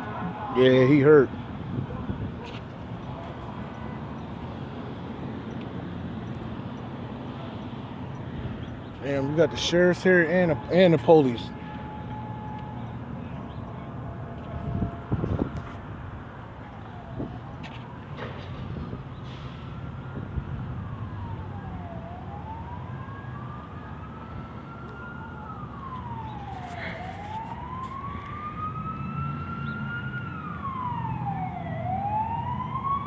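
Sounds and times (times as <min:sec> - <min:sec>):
siren wailing: 0:00.0 - 0:01.3, 0:09.0 - 0:15.8, 0:16.5 - 0:33.0
fainter higher siren wailing: 0:09.0 - 0:15.8, 0:19.6 - 0:33.0.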